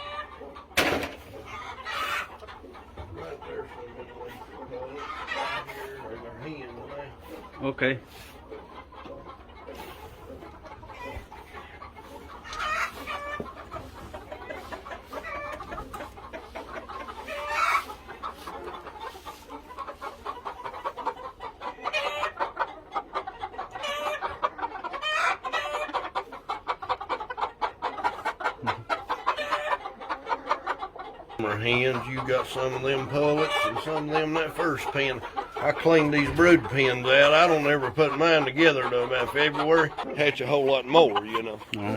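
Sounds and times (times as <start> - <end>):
roosters crowing: 0.0 - 2.4, 9.5 - 18.5
chickens clucking: 0.0 - 41.9.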